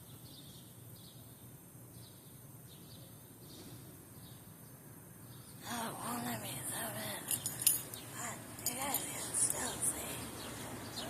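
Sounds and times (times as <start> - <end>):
faint birds chirping: 0.0 - 11.0
low background hum: 0.0 - 11.0.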